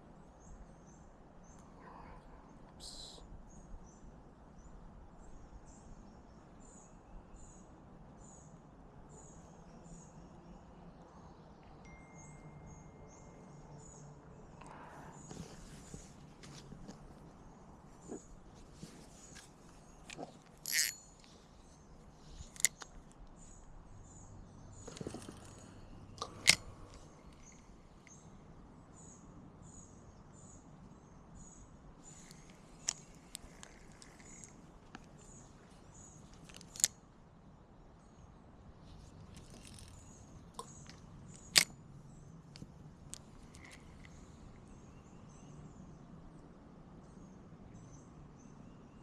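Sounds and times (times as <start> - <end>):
small bird chirping: 0.4 - 8.6, 17.3 - 36.9.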